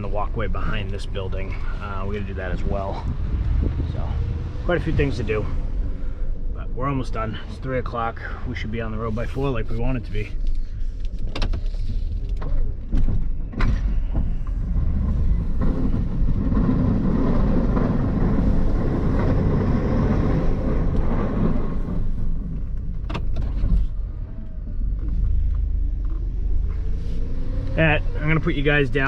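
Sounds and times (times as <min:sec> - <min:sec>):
truck engine running: 0:14.6 - 0:26.8.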